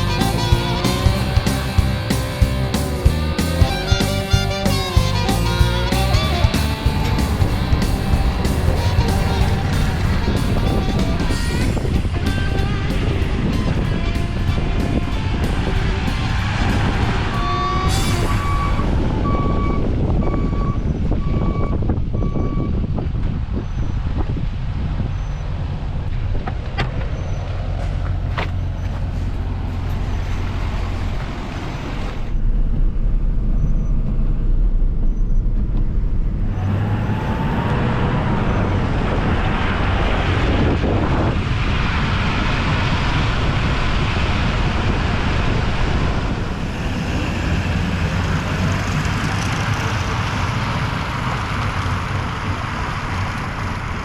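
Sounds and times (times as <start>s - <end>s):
truck engine running: 0.0s - 54.0s
repeated beep: 17.4s - 22.8s.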